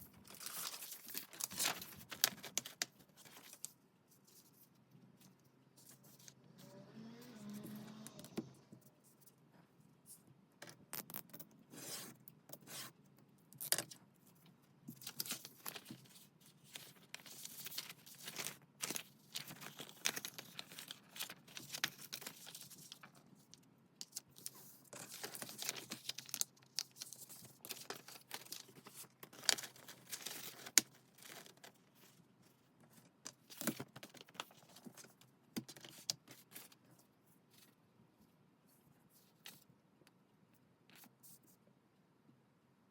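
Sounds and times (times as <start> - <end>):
paper tearing and rustling: 24.4 - 26.4.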